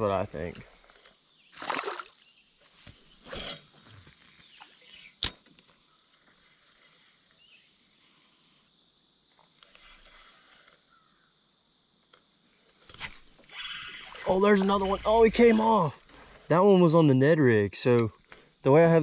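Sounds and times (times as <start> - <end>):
faint high-pitched hiss: 0.0 - 19.0.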